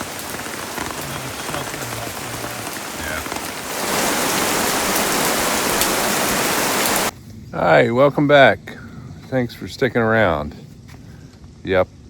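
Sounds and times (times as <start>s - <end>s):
heavy rain: 0.0s - 7.2s.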